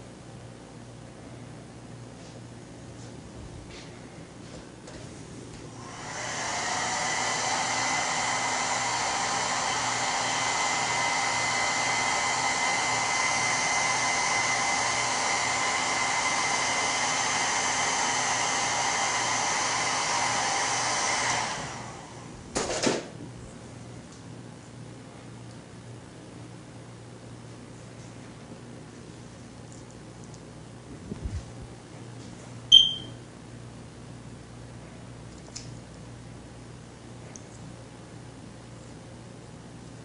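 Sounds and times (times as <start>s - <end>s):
hair dryer blowing: 5.7s - 22.5s.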